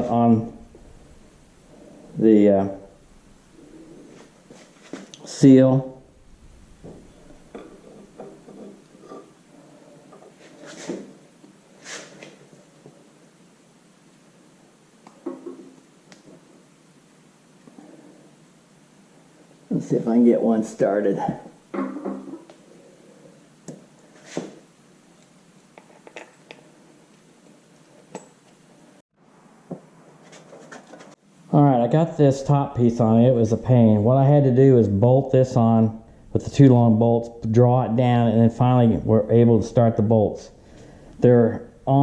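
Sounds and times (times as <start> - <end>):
short hiss: 11.8 - 12.3.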